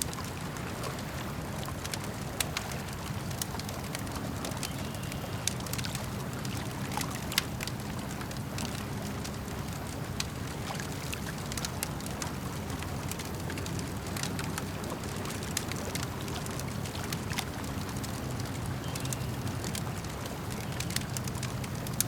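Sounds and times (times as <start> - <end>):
campfire crackling and popping: 0.0 - 22.0
lake water lapping: 0.0 - 22.0.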